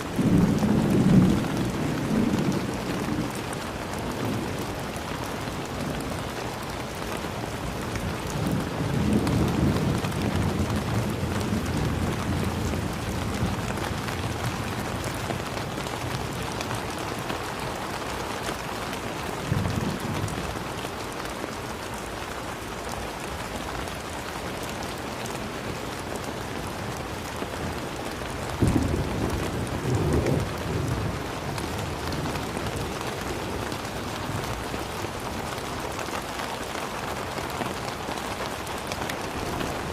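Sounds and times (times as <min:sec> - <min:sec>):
thunder rumbling: 0:00.0 - 0:04.8, 0:28.5 - 0:35.3, 0:39.2 - 0:39.9
steady rain: 0:00.0 - 0:39.9.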